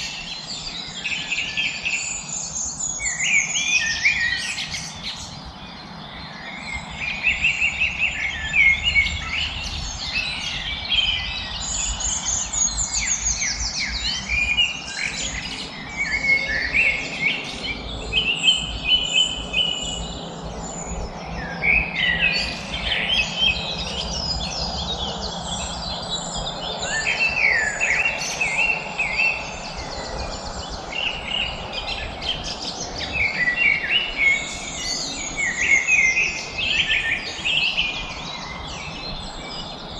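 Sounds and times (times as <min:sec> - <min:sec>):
small birds chirping and singing: 0:00.0 - 0:39.9.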